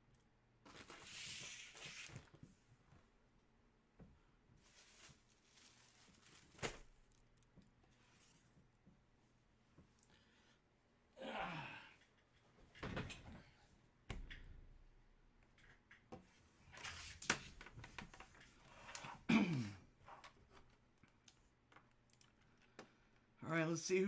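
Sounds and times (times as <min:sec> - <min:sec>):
card packaging rustling: 0:00.6 - 0:02.4, 0:04.6 - 0:07.5
crinkling rustle: 0:00.6 - 0:02.6, 0:04.6 - 0:08.6.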